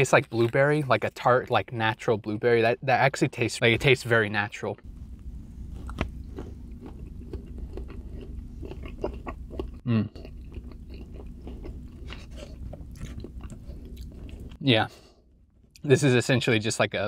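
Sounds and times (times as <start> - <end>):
person chewing food: 5.6 - 14.6
person humming: 9.9 - 10.1.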